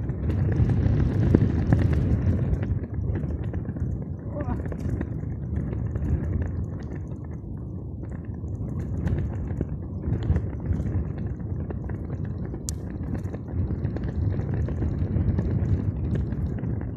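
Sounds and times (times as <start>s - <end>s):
steady low rumble: 0.0s - 16.9s
small ticks: 1.3s - 16.9s.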